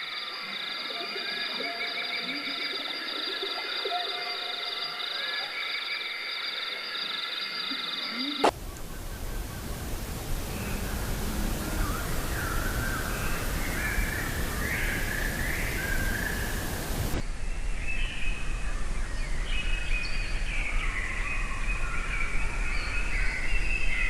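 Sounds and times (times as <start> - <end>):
background hiss: 7.4 - 17.4
birds calling: 8.0 - 17.2.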